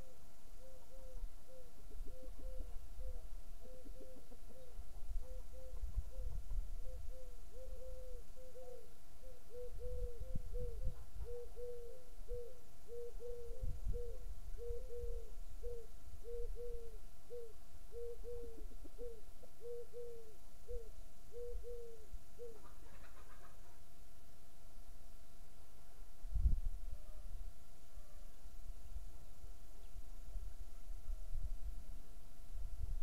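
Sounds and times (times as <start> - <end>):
bird hooting: 0.0 - 23.8
wind rumbling on microphone: 5.0 - 7.3, 9.7 - 11.6, 13.3 - 15.4, 26.2 - 27.0, 30.2 - 33.0.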